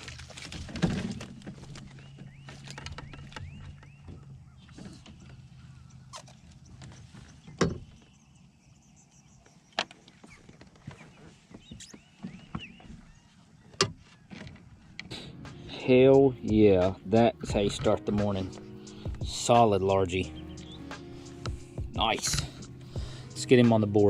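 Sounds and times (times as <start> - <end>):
gear knocking against kayak: 0.0 - 8.2, 9.7 - 15.1, 17.4 - 19.6, 21.4 - 23.8.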